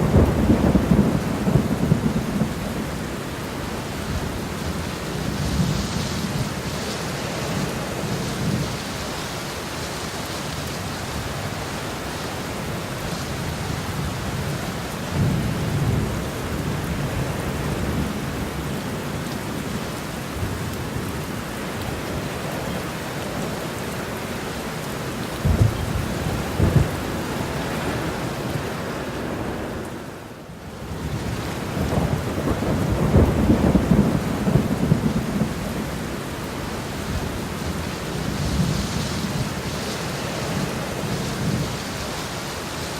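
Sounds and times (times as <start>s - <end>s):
thunder rumbling: 0.0s - 8.9s, 25.4s - 29.8s, 30.8s - 42.0s
steady rain: 0.0s - 42.9s.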